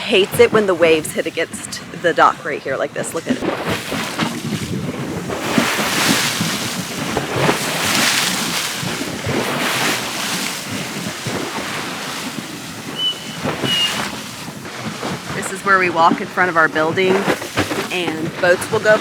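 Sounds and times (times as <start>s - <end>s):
waves splashing against a dock: 0.0s - 19.0s
wind buffeting microphone: 0.0s - 19.0s
dog whining: 13.0s - 14.1s.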